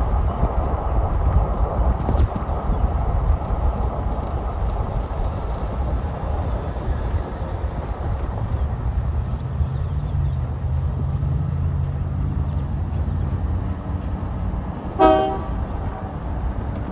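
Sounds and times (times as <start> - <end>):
diesel locomotive idling: 0.0 - 16.9
short pitched horn tone: 15.0 - 15.7.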